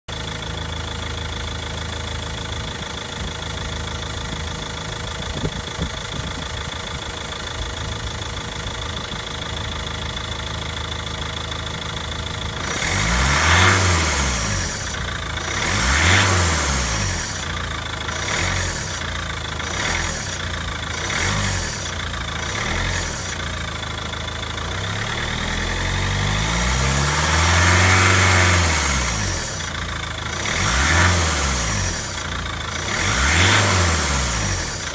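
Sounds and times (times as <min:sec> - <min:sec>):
diesel car engine idling: 0:00.1 - 0:34.9
engine belts whirring: 0:00.1 - 0:34.9
engine revving: 0:12.4 - 0:34.9
hiss on engine revs: 0:12.6 - 0:23.6, 0:27.0 - 0:34.9.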